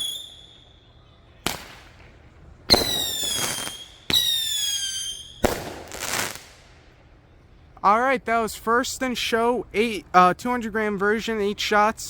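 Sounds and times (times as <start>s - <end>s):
firework whistles: 0.0s - 2.1s, 2.7s - 6.7s
firework pops: 1.4s - 4.6s, 5.4s - 6.7s.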